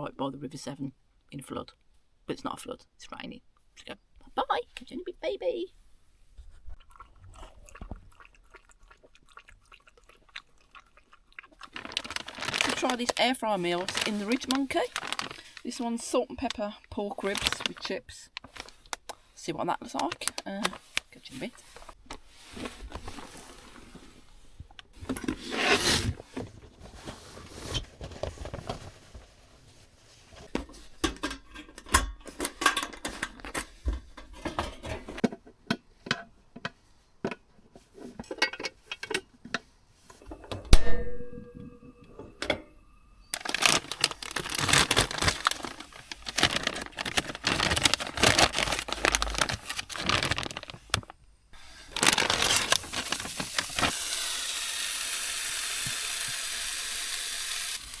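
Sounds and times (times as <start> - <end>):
continuous crackling: 11.3 - 19.2, 19.8 - 22.2, 43.3 - 51.2, 51.9 - 54.0
packaging rustling and tearing: 11.6 - 15.8, 17.2 - 19.2, 19.9 - 23.9, 43.3 - 54.3
pan and utensils clattering: 30.6 - 35.4, 37.8 - 39.3.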